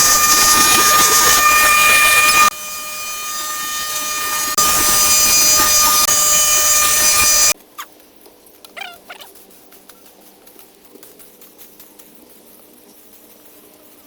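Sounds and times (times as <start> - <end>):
machine whining: 0.0 - 7.6.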